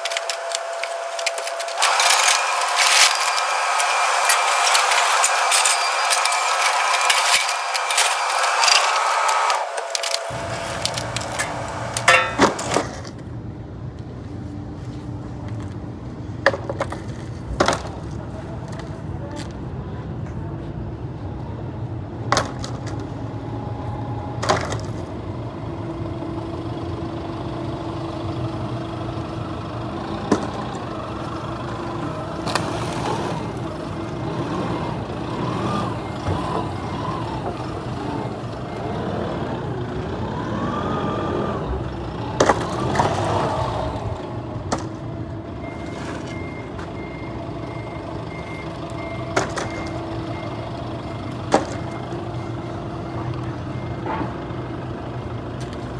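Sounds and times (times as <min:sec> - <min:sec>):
loading knocks and clunks: 0:00.0 - 0:13.1
truck engine running: 0:00.0 - 0:13.3, 0:23.1 - 0:55.9.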